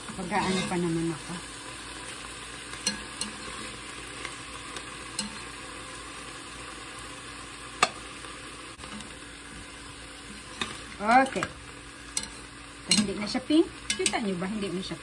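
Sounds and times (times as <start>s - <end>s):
chicken sizzling in hot oil: 0.0s - 15.0s
utensil clicking against pan: 10.6s - 14.3s.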